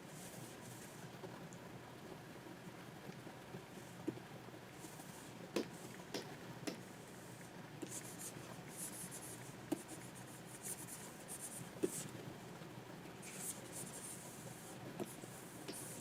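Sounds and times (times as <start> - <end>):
stylus scratching on pen tablet: 7.8 - 12.1, 13.2 - 16.0.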